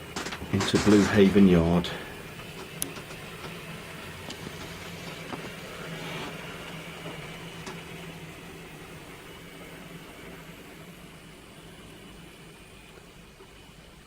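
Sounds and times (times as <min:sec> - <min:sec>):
model train motor hum: 0:00.0 - 0:14.0.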